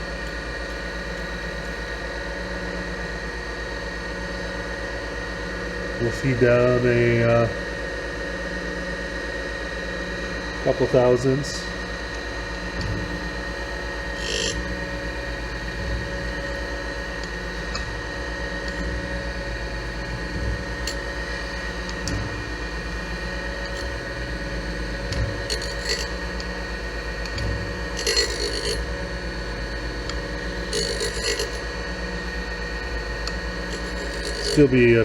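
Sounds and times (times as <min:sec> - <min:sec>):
surface grinder motor hum: 0:10.4 - 0:35.0
grinding wheel hiss: 0:14.2 - 0:14.6, 0:20.8 - 0:35.0.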